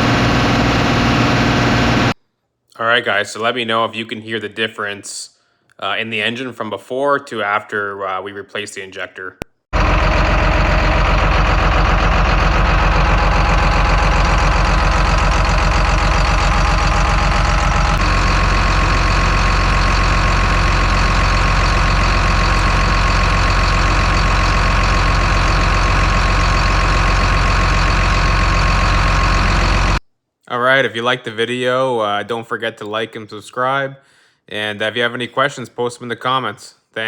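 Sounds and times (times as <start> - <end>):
loader diesel engine running: 0.0 - 2.2, 9.8 - 30.0.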